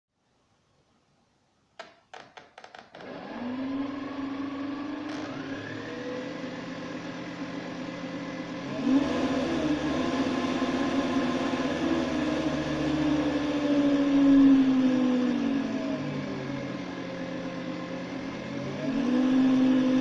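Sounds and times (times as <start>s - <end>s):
electric propeller motors whining: 3.0s - 7.5s, 18.4s - 20.0s.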